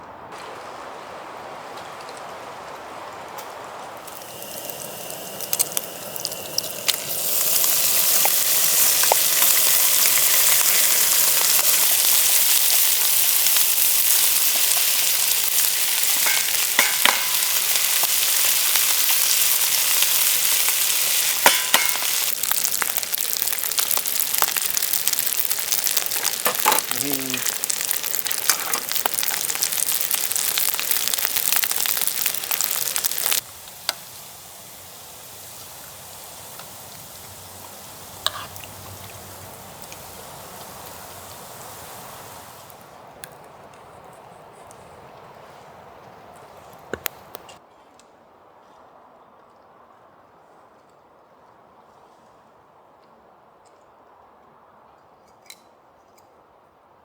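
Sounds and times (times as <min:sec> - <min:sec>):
food sizzling in a frying pan: 0:04.0 - 0:42.8
utensil scraping a pan: 0:38.2 - 0:39.0.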